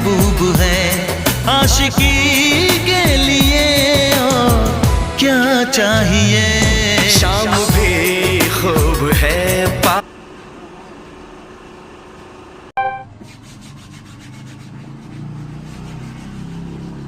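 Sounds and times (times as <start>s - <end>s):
indian pop song: 0.0s - 10.0s
vehicle horn beep: 12.8s - 13.2s.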